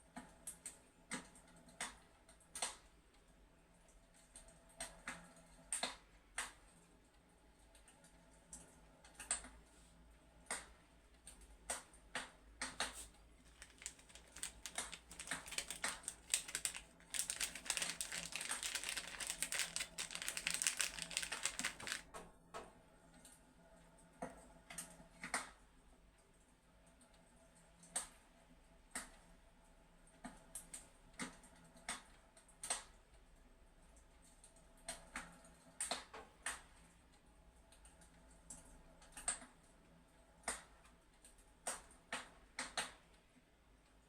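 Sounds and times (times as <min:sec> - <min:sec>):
fireplace crackling and popping: 0:13.4 - 0:22.1.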